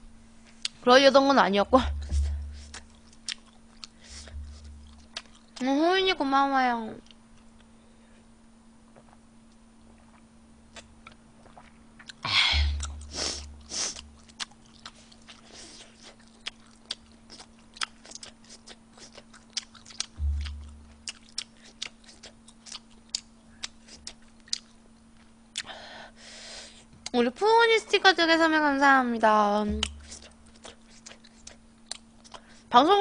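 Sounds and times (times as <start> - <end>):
faint steady hum: 0.0 - 33.0
low thump: 1.7 - 2.8, 4.2 - 5.0, 20.2 - 21.1
thuds and rustles: 1.8 - 2.8
chewing with wet mouth clicks: 2.6 - 5.6, 9.0 - 12.2, 12.8 - 25.7, 29.7 - 32.5.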